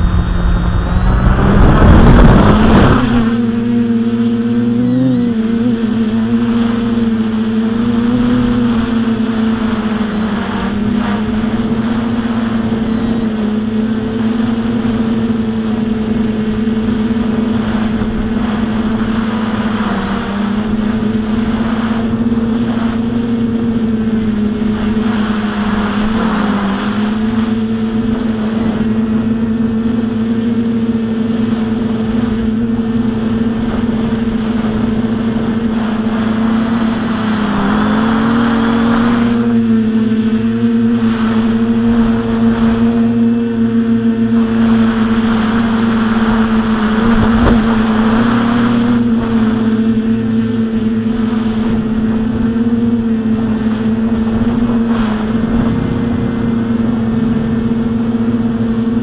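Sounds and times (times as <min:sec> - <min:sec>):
quadcopter motors whining: 0:00.0 - 0:59.0.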